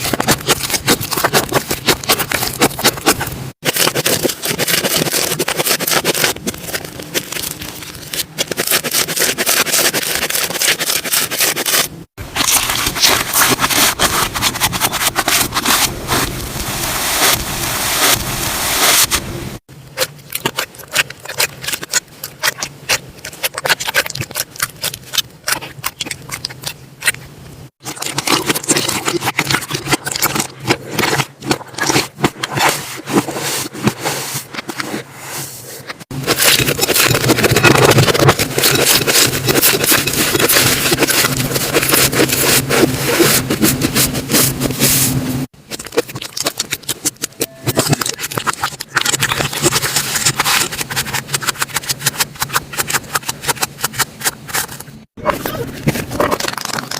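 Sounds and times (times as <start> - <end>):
slime crackling and popping: 20.0 - 27.2, 45.7 - 54.3.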